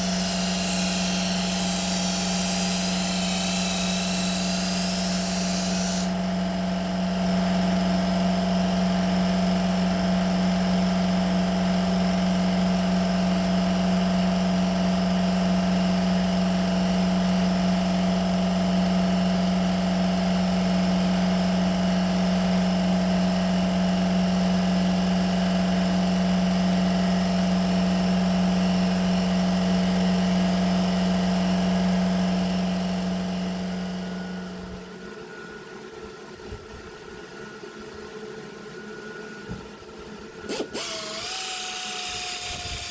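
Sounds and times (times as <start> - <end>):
power tool motor humming: 0.0 - 6.2, 40.5 - 42.9.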